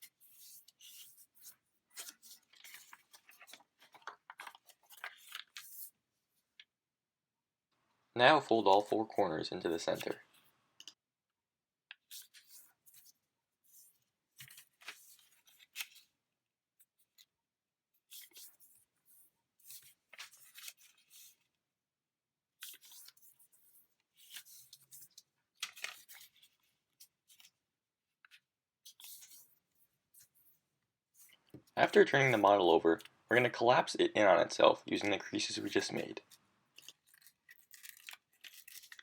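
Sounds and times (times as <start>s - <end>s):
paper rustling and crinkling: 0.0s - 6.0s, 9.7s - 10.5s, 12.0s - 16.2s, 18.1s - 21.5s, 22.6s - 27.6s, 28.2s - 30.6s, 34.9s - 39.0s
soft paper clicks: 0.4s - 5.8s, 22.6s - 27.6s, 35.8s - 39.0s.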